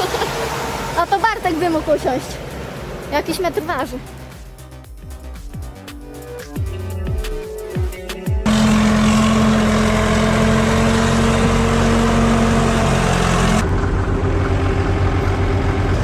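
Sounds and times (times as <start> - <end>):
diesel engine running: 8.4 - 16.0.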